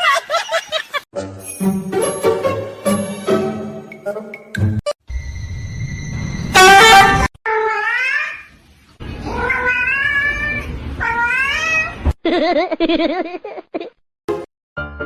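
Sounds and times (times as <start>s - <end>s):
cat meowing: 9.2s - 12.0s.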